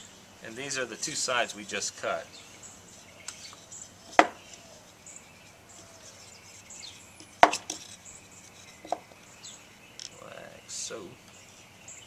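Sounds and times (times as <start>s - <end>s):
faint bird chirps: 1.6s - 12.0s
wooden knocks on workbench: 4.2s - 4.4s.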